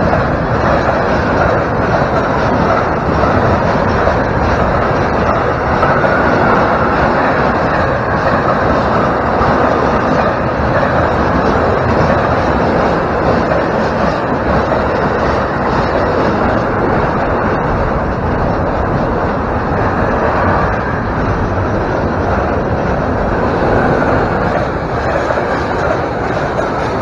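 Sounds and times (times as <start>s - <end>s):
freight train wheels on rails: 0.0s - 27.0s.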